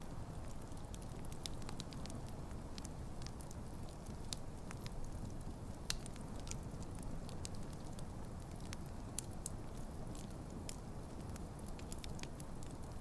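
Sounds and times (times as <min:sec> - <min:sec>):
burning wood crackling and popping: 0:00.0 - 0:13.0
campfire flames rumbling: 0:00.0 - 0:13.0.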